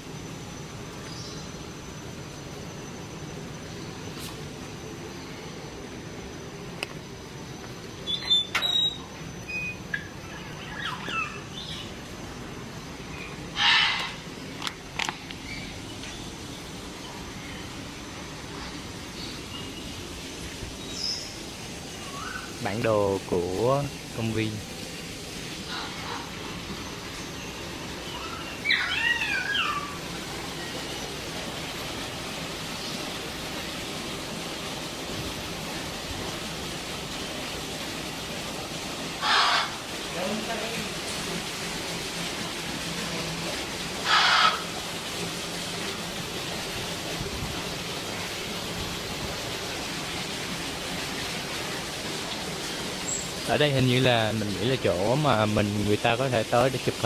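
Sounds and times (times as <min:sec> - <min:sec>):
background hiss: 0:00.0 - 0:57.0
bird calls and chirps: 0:08.0 - 0:12.0, 0:20.7 - 0:22.8, 0:25.6 - 0:31.2
harsh bird squawk: 0:10.3 - 0:11.8, 0:13.5 - 0:14.3, 0:28.1 - 0:30.0, 0:39.2 - 0:39.9, 0:44.0 - 0:44.8.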